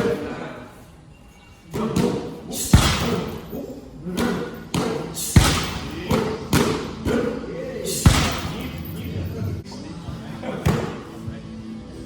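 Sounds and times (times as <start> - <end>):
strikes thudding on pads: 2.0 - 3.3, 4.2 - 7.2, 8.0 - 8.7.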